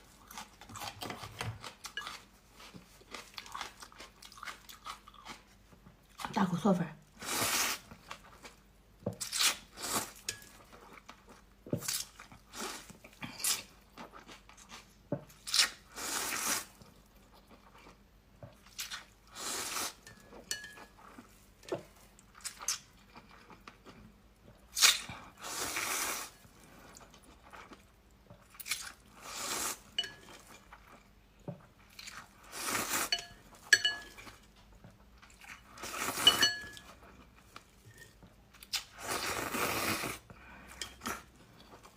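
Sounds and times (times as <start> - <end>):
person slurping noodles: 39.0 - 40.3.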